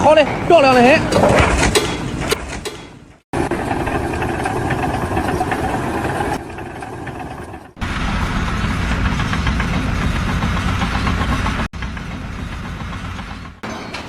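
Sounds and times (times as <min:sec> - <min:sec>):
engine-like mechanical running: 0:03.4 - 0:14.0.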